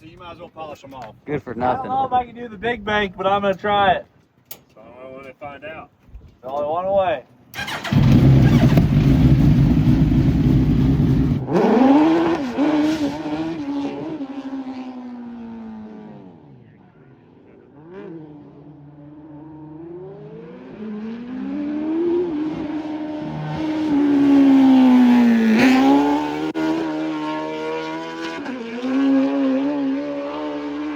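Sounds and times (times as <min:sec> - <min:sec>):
race car engine passing by: 0:17.8 - 0:30.9.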